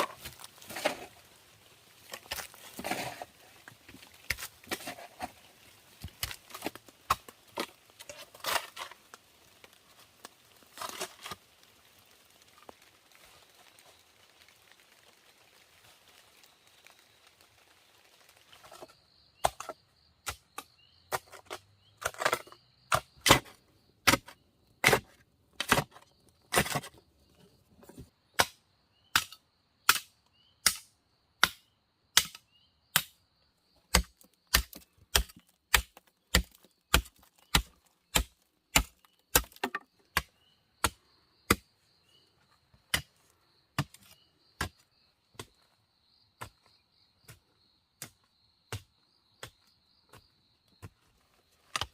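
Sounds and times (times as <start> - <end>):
chopping strikes on wood: 28.4 - 32.4, 33.0 - 33.2, 33.9 - 41.7.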